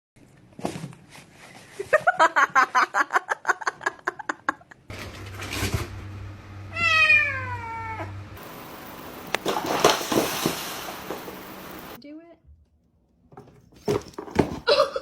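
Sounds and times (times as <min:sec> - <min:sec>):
low steady hum: 0:04.9 - 0:12.1
cat calling: 0:06.7 - 0:08.2.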